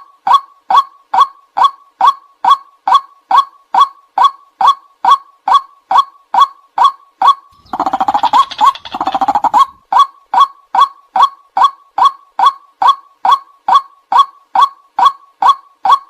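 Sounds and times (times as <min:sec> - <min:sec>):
fast rattling bird phrases: 0:07.5 - 0:09.8
waterhen calling sharp kwak notes: 0:07.6 - 0:09.8.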